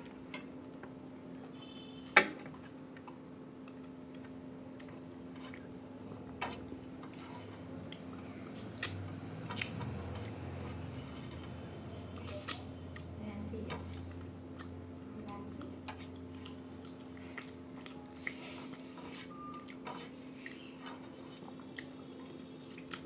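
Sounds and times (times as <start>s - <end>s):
low steady hum: 0.0s - 23.0s
person chewing food: 4.7s - 13.2s, 13.8s - 23.0s.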